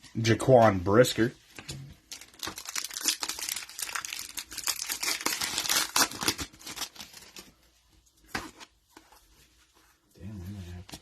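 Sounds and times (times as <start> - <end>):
plastic foil wrapper crinkling: 2.1 - 7.5.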